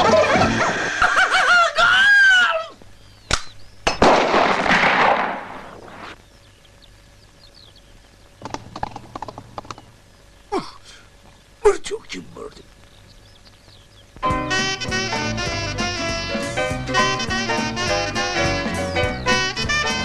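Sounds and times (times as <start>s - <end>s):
faint bird chirps: 2.8s - 3.9s, 5.7s - 14.2s
sharp gunshots: 3.3s - 6.2s
music: 14.2s - 20.0s.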